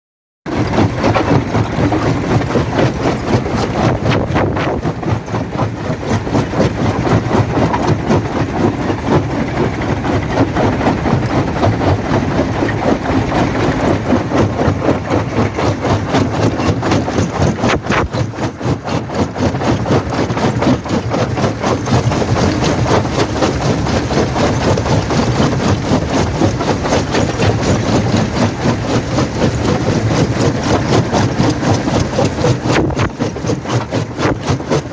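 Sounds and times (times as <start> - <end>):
rapid knocking: 0.4 - 34.9
jaw crusher mechanical drone: 0.5 - 34.9.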